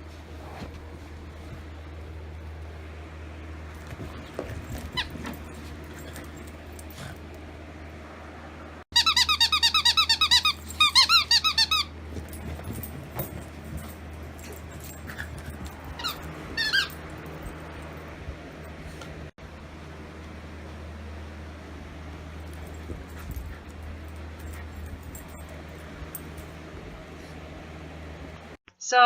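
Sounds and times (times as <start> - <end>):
squeaky dog toy squeaking: 8.9 - 11.9, 16.0 - 16.9.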